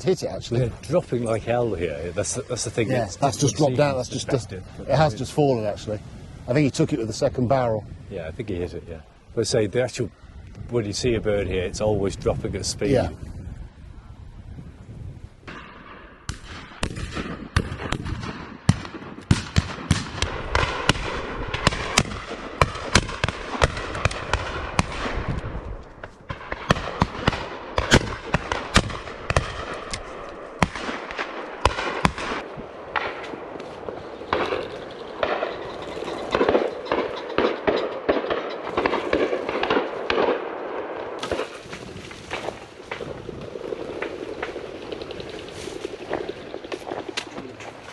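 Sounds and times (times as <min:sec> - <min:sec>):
wind haze: 0:00.0 - 0:47.9
shotgun fire: 0:15.5 - 0:25.4, 0:26.3 - 0:35.6, 0:36.3 - 0:41.6.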